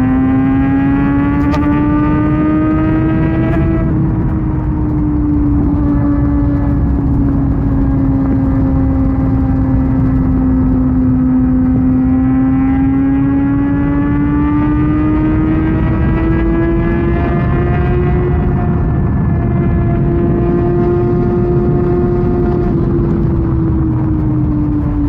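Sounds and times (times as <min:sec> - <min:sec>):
motorcycle engine at high revs: 0:00.0 - 0:25.0
wind and road noise: 0:00.0 - 0:25.0.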